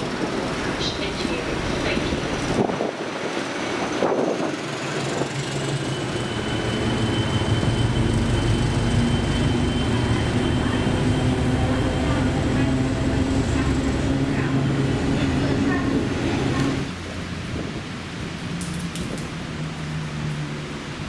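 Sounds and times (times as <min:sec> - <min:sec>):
train passing close by: 0:00.0 - 0:21.0
low engine note: 0:05.0 - 0:21.0.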